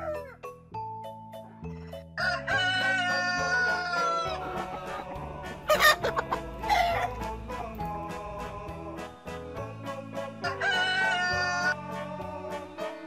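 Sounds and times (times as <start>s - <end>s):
background music with low bass: 0.0s - 13.0s
rooster crowing: 2.2s - 5.0s, 5.7s - 7.2s, 10.4s - 11.8s.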